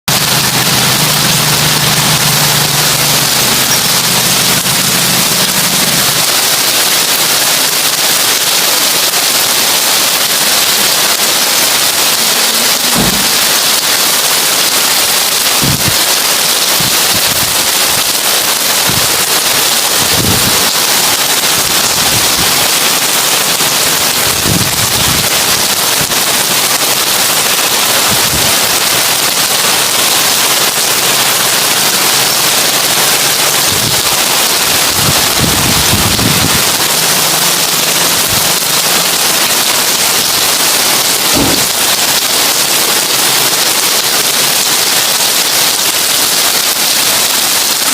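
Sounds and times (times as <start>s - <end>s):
rain on a tin roof: 0.0s - 47.9s
deep thuds: 13.0s - 13.5s, 41.3s - 41.8s.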